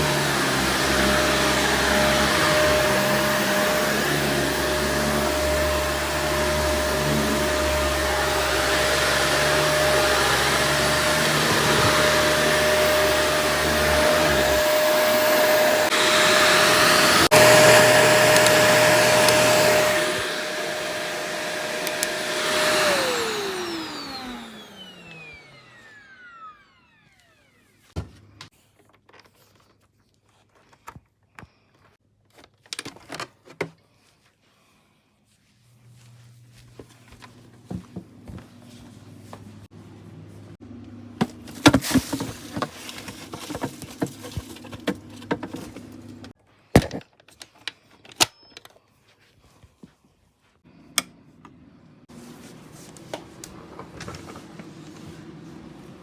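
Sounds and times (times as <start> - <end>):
vacuum cleaner motor whine: 0.0 - 27.9, 35.9 - 46.4, 51.9 - 56.0.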